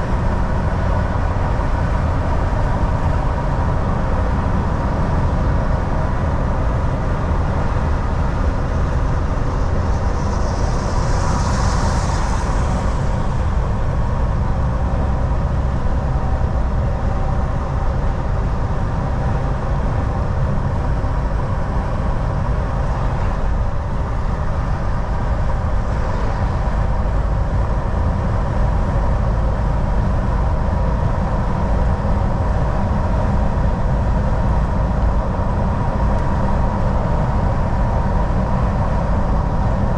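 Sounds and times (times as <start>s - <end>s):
road rumble: 0.0s - 39.9s
thin steady whine: 0.0s - 39.9s
truck engine drone: 0.0s - 39.9s
air hiss: 8.8s - 14.3s.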